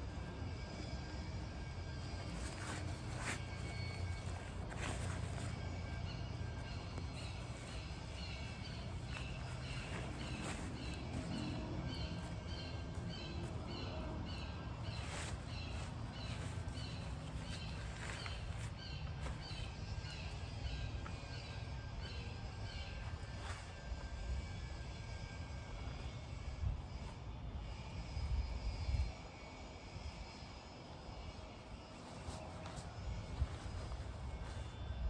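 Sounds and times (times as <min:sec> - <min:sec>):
bird chirping: 0:00.5 - 0:25.4.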